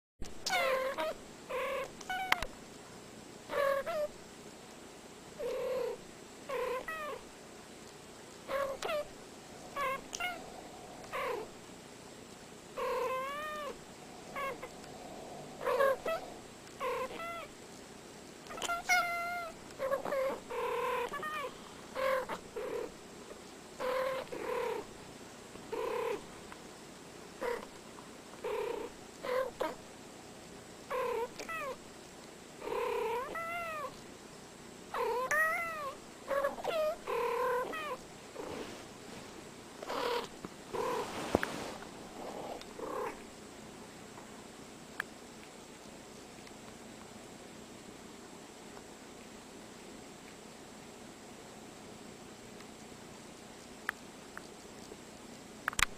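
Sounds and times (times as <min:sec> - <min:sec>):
cat meowing: 0:09.7 - 0:11.5, 0:12.8 - 0:14.8, 0:15.5 - 0:17.5.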